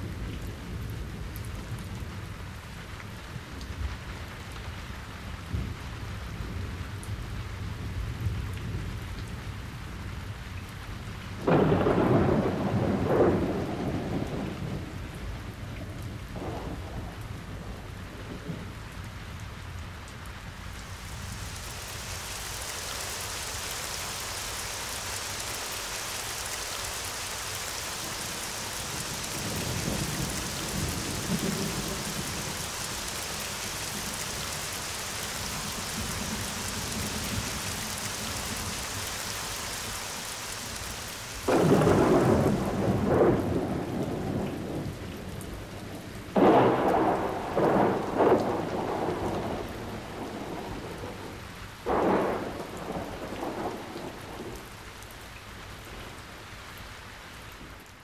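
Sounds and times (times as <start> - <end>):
thunder: 11.4 - 18.7, 27.8 - 38.8, 41.4 - 45.1, 46.3 - 54.6
rain hissing: 19.5 - 57.5.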